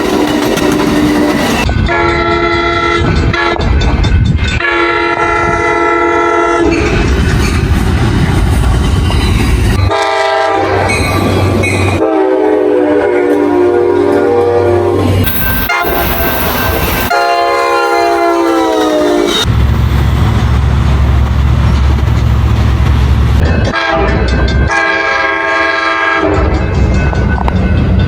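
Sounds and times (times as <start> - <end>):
locomotive air horn blasts: 0.0 - 3.7, 4.6 - 6.8, 9.9 - 11.0, 11.9 - 19.5, 23.7 - 26.6
moving train rumble: 0.0 - 28.0.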